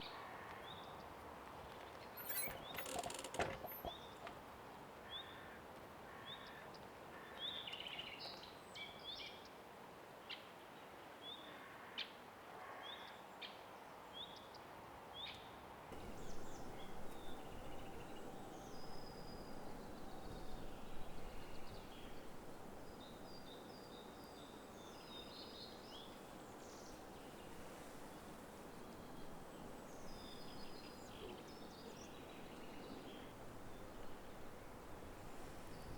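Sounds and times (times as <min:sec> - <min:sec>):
sharp clicks: 0:02.2 - 0:03.9
bird chirping: 0:02.2 - 0:04.2, 0:16.0 - 0:34.4
steady rushing hiss: 0:16.0 - 0:35.9.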